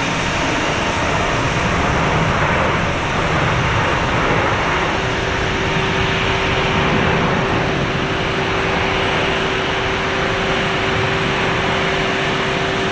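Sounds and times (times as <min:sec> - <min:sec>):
steady engine tone: 0:00.0 - 0:12.9.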